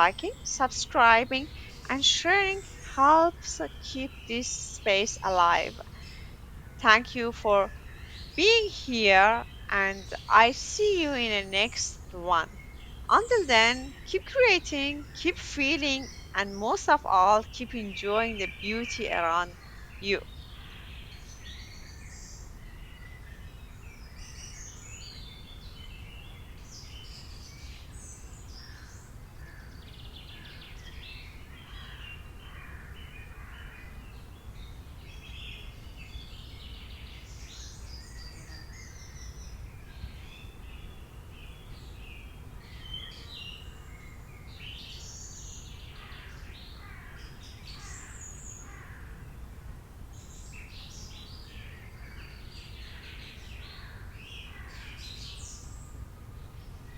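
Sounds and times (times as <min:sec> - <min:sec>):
birds chirping and singing: 0:00.0 - 0:22.5.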